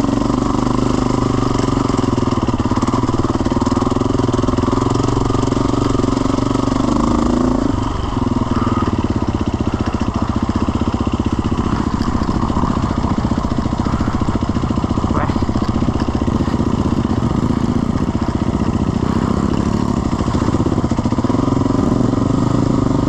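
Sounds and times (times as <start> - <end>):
jet ski engine puttering: 7.8 - 21.2.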